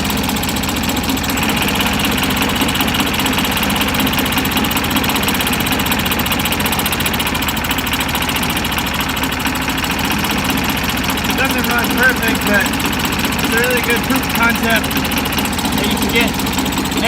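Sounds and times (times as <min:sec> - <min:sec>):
small lawn mower engine running: 0:00.0 - 0:17.0.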